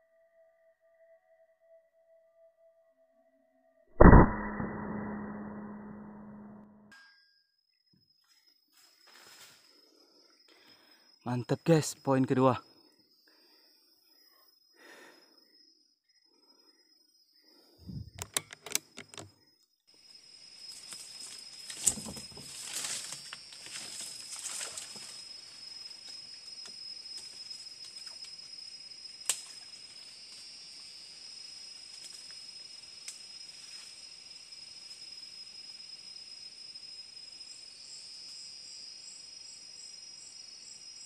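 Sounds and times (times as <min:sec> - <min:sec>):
insects droning: 0:07.5 - 0:41.0
sharp clicks and knocks: 0:18.1 - 0:19.3.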